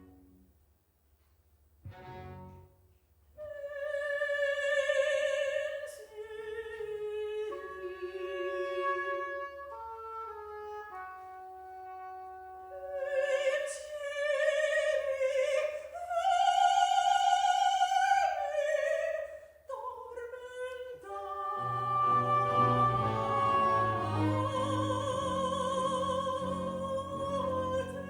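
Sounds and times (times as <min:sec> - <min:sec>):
soprano singing opera aria: 0:03.4 - 0:10.2, 0:12.7 - 0:28.0
orchestra playing: 0:21.6 - 0:28.0.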